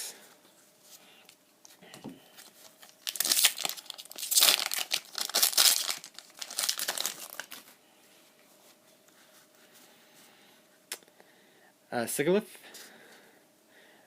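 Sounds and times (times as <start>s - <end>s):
faint hum: 0.0s - 14.0s
foil wrapper crinkling and tearing: 2.4s - 7.8s.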